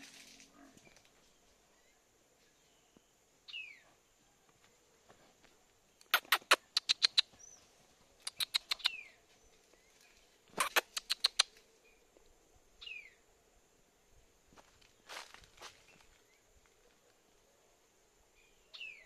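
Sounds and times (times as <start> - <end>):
birds chattering: 6.0 - 9.2.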